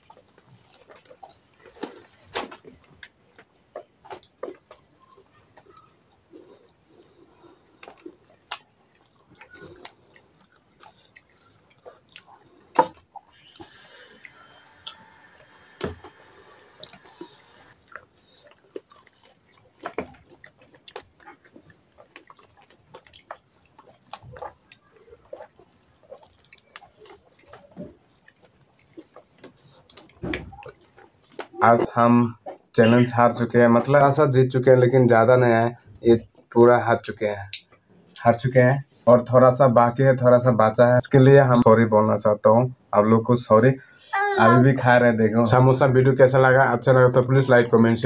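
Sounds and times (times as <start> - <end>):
chewing crunchy food: 0.0 - 34.6, 35.8 - 39.1.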